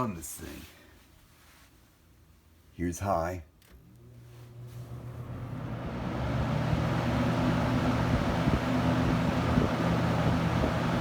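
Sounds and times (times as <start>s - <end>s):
box fan running: 3.6s - 11.0s.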